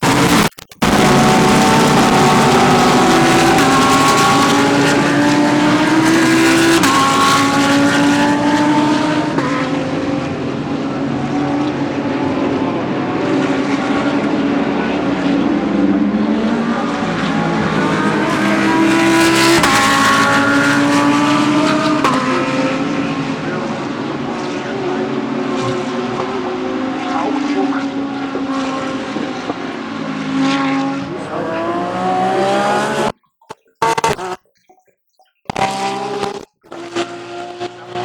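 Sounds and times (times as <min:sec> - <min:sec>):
race car engines at full throttle: 0:00.0 - 0:38.0.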